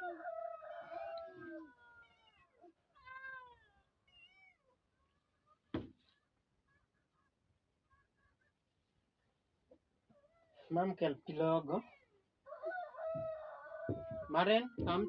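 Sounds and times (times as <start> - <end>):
cat meowing: 1.4 - 4.8.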